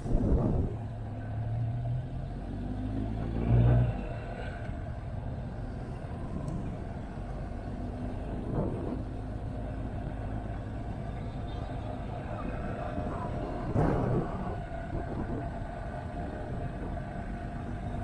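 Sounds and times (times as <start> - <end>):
road rumble: 0.0 - 18.0
wind: 0.0 - 18.0.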